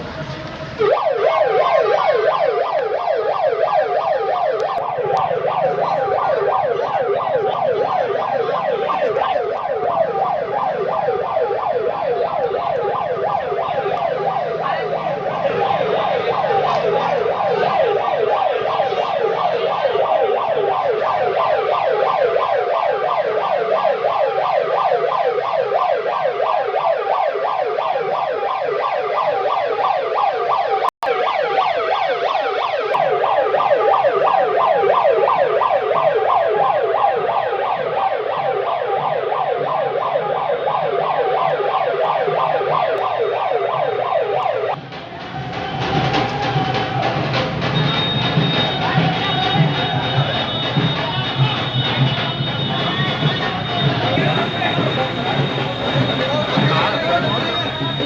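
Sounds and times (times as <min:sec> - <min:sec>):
electronic siren yelping: 0:00.8 - 0:44.8, 0:45.8 - 0:58.0.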